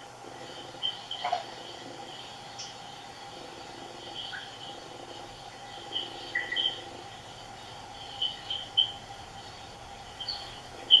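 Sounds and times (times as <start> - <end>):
faint steady hum: 0.0 - 11.0
high bird chirps: 5.7 - 6.9, 8.0 - 9.1, 10.1 - 11.0.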